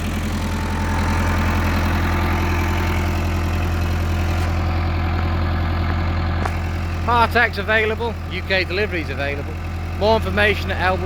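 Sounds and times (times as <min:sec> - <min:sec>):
tractor diesel engine droning: 0:00.0 - 0:11.0.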